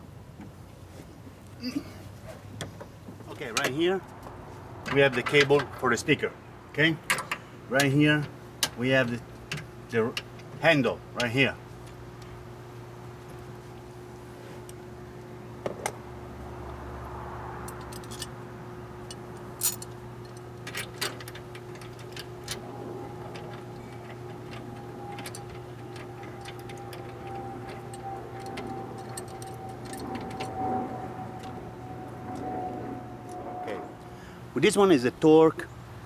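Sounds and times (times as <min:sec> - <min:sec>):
steady low hum: 0:05.8 - 0:36.0
hand tools clicking and rattling: 0:19.1 - 0:31.6.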